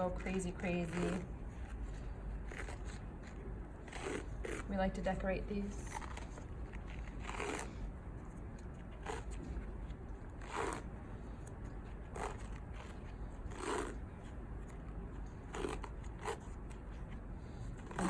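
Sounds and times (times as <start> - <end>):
bandage wrap crackling rips: 5.9 - 7.7.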